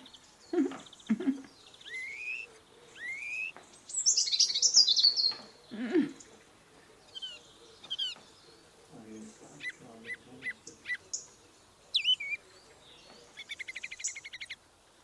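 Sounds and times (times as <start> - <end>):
high chirping: 12.0 - 12.4.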